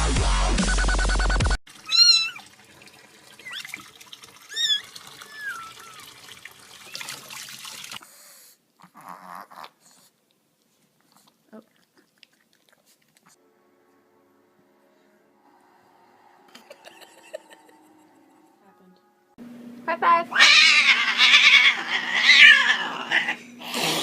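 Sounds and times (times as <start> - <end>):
electronic dance music: 0.0 - 1.6
cat meowing: 1.9 - 2.4, 4.5 - 6.1, 20.3 - 23.4.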